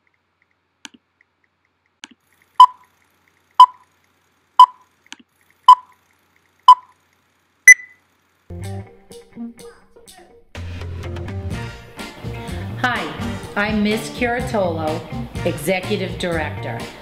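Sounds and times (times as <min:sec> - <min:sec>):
short beeps: 0:02.6 - 0:02.8, 0:03.6 - 0:03.8, 0:04.6 - 0:04.8, 0:05.7 - 0:05.9, 0:06.7 - 0:06.9, 0:07.7 - 0:08.0
higher-pitched beep: 0:04.6 - 0:04.8, 0:07.7 - 0:08.0.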